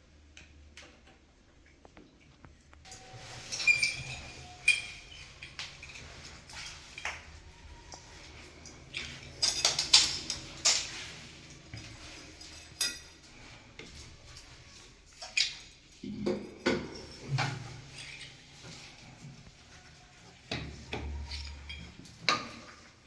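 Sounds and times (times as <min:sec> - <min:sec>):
hard objects clinking and knocking: 0:02.9 - 0:14.4.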